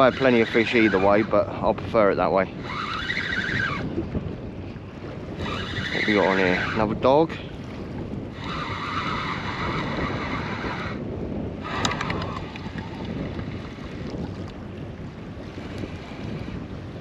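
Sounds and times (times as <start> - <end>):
fishing reel whirring: 0.0 - 1.4, 2.5 - 4.0, 5.3 - 7.0, 8.2 - 14.1
water lapping against boat: 0.0 - 17.0
wind buffeting microphone: 0.0 - 17.0
fishing reel clicks: 2.6 - 3.6, 11.7 - 12.8.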